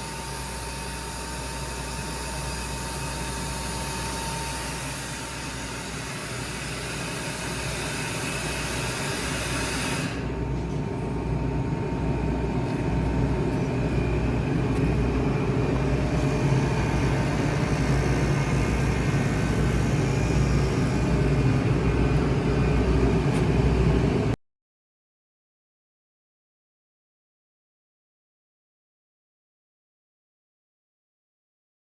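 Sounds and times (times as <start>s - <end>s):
air compressor running: 0.0s - 24.4s.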